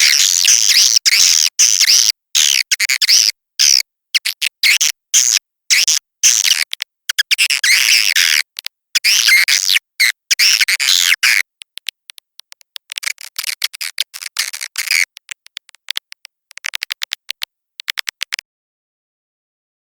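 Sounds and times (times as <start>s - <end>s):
clicky bird chirps: 0.0s - 18.4s
high bird chittering: 9.0s - 11.9s, 13.1s - 18.1s.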